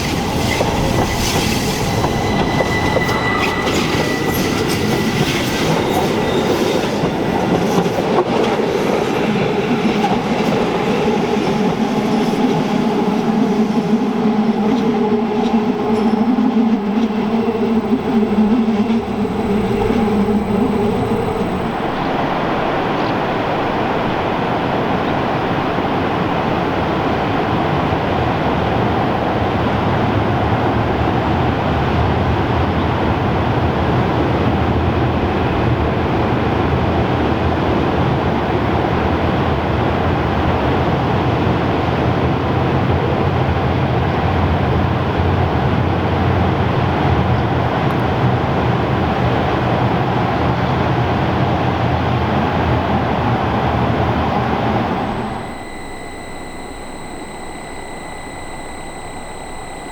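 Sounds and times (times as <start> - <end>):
train wheels rolling on rails: 0.0 - 22.0
low train rumble: 0.0 - 26.9.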